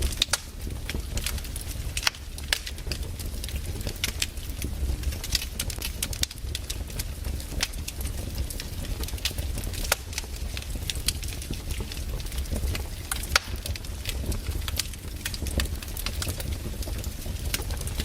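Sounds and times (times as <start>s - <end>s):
firewood crackling and popping: 0.0s - 18.0s
low rumble of fire: 0.0s - 18.0s.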